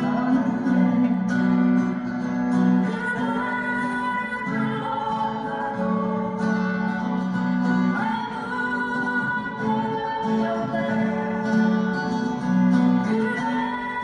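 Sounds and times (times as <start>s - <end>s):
voices singing held notes: 0.0s - 1.5s
acoustic guitars strummed: 0.0s - 14.0s.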